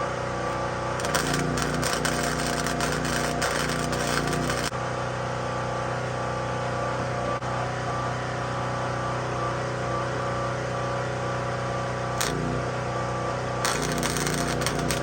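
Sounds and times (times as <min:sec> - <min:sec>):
generator engine running: 0:00.4 - 0:04.7, 0:13.6 - 0:15.0.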